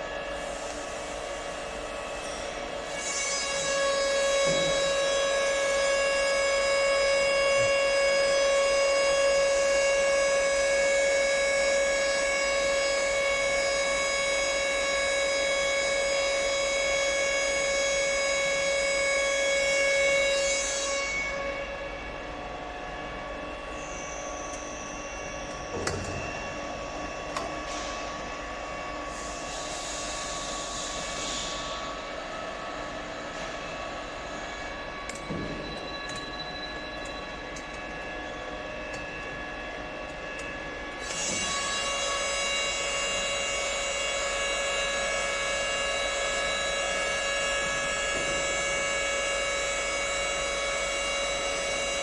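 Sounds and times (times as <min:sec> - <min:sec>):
bending machine whining: 0:23.0 - 0:28.5, 0:30.9 - 0:52.0
machine hum: 0:31.6 - 0:51.9.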